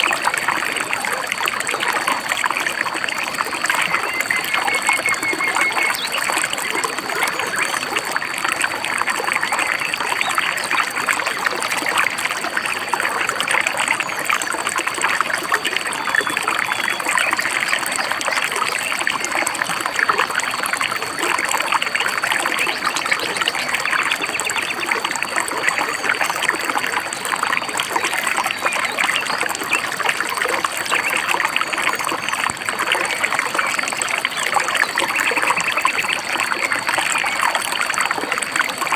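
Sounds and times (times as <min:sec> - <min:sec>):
stream babbling over rocks: 0:00.0 - 0:38.9
faint bird chirps: 0:03.6 - 0:07.8, 0:16.0 - 0:19.0.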